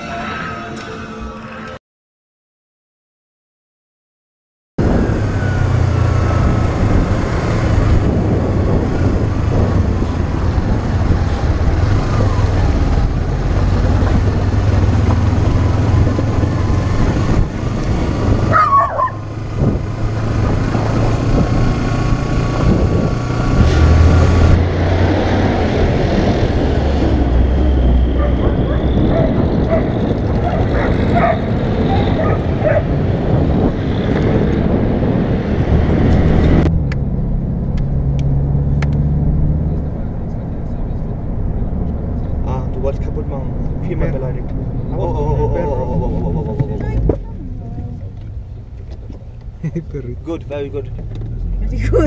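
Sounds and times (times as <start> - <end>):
wind noise on microphone: 4.8 - 42.5
motorcycle engine running: 5.8 - 23.5.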